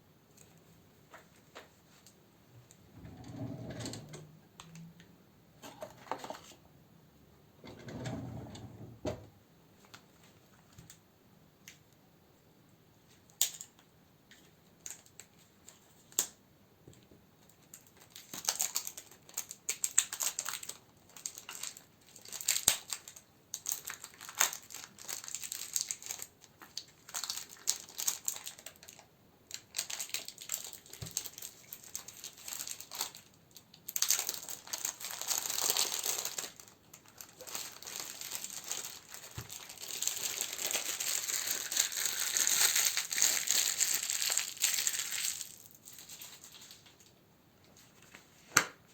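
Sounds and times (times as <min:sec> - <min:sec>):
plastic and paper crinkling: 0:17.4 - 0:48.6.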